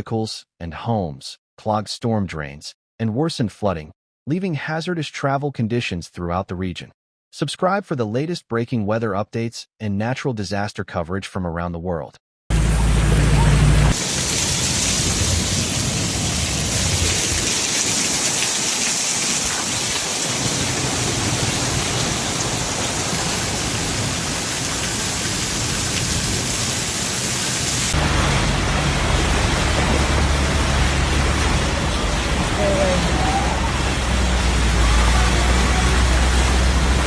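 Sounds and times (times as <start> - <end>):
deep low rumble: 12.5 - 17.4
heavy rain pouring: 12.5 - 37.0.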